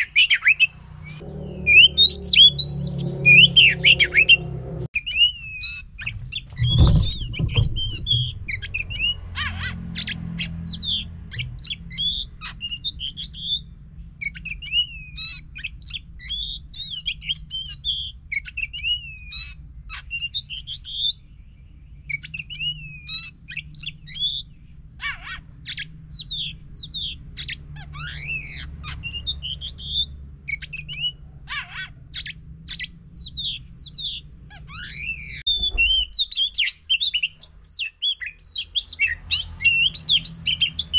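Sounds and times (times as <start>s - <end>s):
brief low rumble: 1.0s - 4.9s, 6.1s - 9.1s
steady low hum: 1.0s - 4.9s
bird singing whistled phrases: 32.2s - 40.9s.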